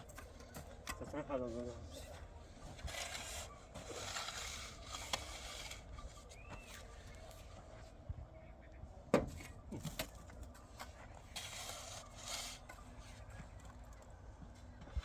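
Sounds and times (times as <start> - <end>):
rough scraping: 2.6 - 6.9, 11.2 - 13.3.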